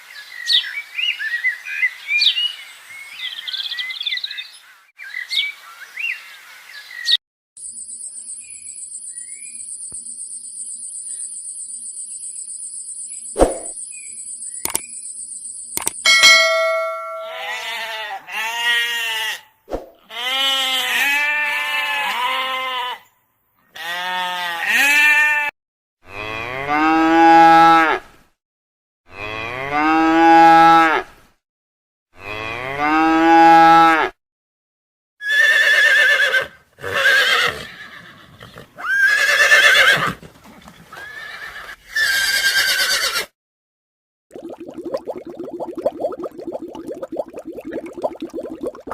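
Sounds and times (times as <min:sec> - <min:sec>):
farm animals calling: 0:16.6 - 0:19.4.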